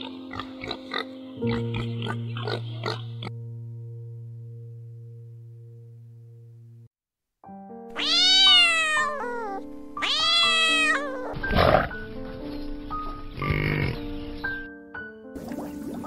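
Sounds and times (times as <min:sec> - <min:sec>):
calf calling: 0:00.0 - 0:03.3, 0:08.0 - 0:11.9
light background music: 0:00.0 - 0:06.9, 0:07.5 - 0:16.0
cat meowing: 0:08.0 - 0:11.5.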